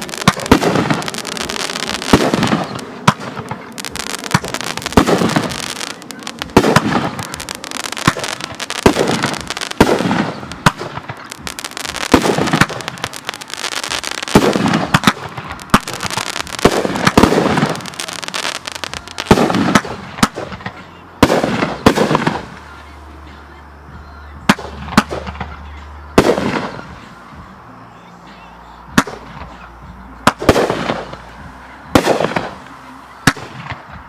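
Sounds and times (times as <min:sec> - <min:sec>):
fireworks bangs: 0:00.0 - 0:23.4, 0:30.2 - 0:34.0
fireworks crackling and fizzing: 0:00.0 - 0:23.6, 0:29.0 - 0:34.0.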